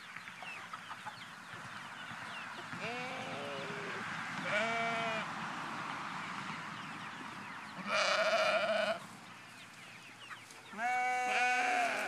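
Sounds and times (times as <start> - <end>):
chickens clucking and peeping: 0.0 - 12.0
livestock bleating: 2.8 - 5.3, 7.8 - 9.0, 10.8 - 12.0.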